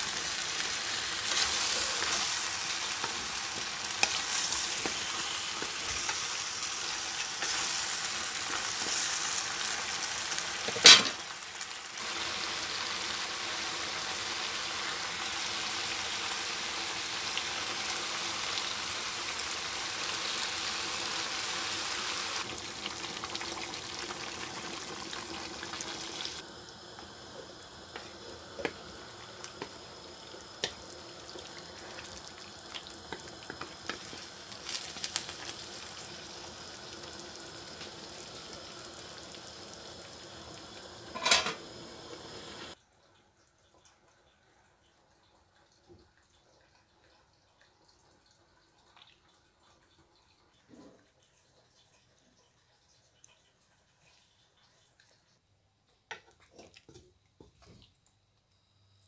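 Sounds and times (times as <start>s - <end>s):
food sizzling in a frying pan: 0.0s - 42.8s.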